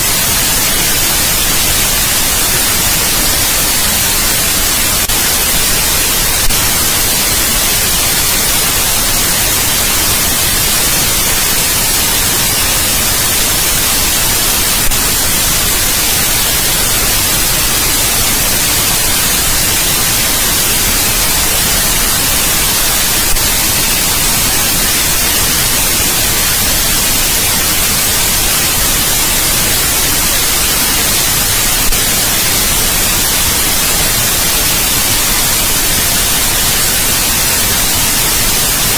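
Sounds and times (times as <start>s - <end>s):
steady white noise: 0.0s - 38.9s.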